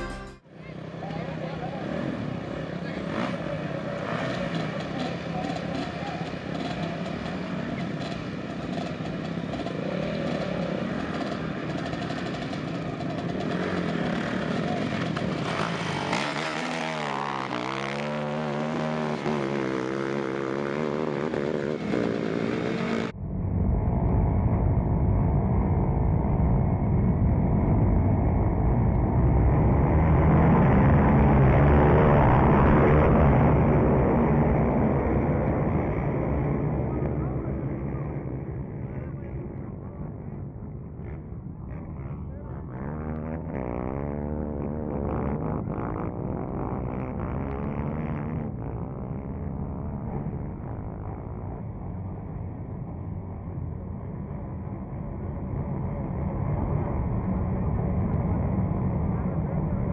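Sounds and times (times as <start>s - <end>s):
dirt bike engines revving: 0.0s - 23.1s, 27.4s - 59.9s.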